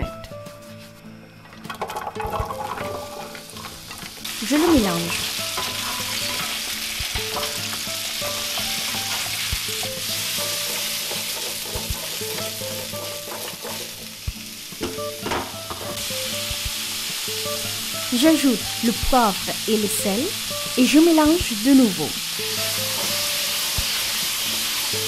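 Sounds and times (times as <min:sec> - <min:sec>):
squash sizzling in oil: 0:01.8 - 0:25.0
spoon knocking on pan: 0:05.1 - 0:14.0.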